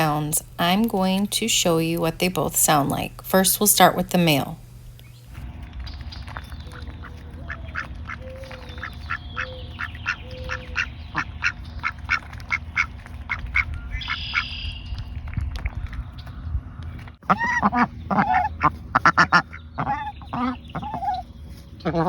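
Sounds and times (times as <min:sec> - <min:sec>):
steady low rumble: 0:00.0 - 0:22.0
ducks quacking: 0:06.7 - 0:14.7, 0:17.2 - 0:22.0.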